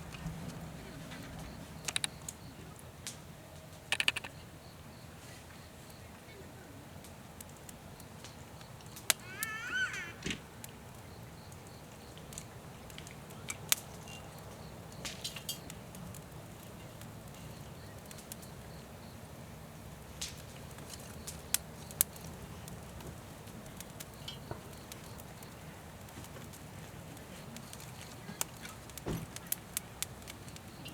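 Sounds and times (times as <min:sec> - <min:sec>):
wood fire crackling: 0:00.0 - 0:30.9.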